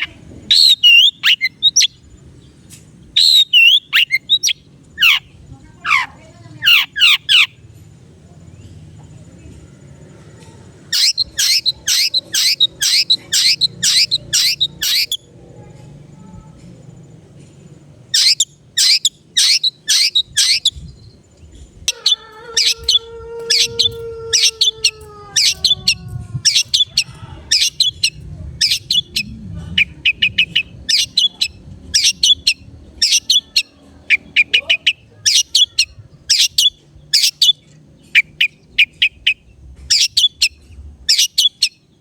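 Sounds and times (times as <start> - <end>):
shrike harsh high calls: 10.9 - 15.2, 21.9 - 37.6
low drawn-out falling tone: 22.6 - 34.3.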